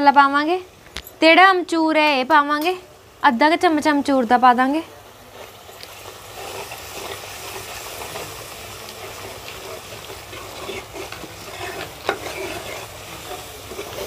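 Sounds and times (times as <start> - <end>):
spices sizzling in a pot: 0.0 - 14.0
spoon scraping a pot: 5.4 - 8.4, 9.0 - 14.0.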